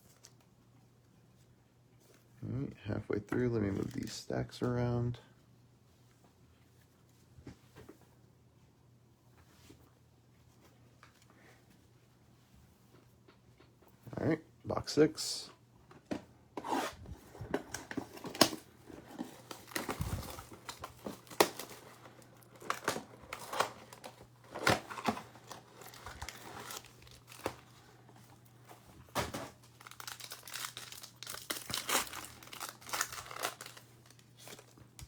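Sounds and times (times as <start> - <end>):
plastic wrapping crinkling and tearing: 17.7 - 28.4, 29.0 - 35.0.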